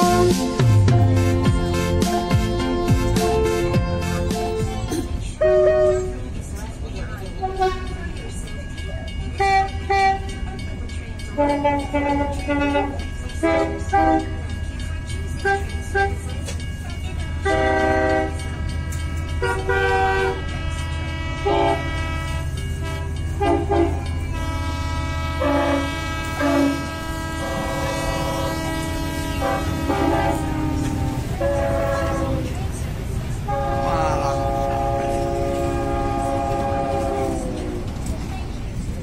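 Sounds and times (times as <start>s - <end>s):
train rumbling: 0.0s - 39.0s.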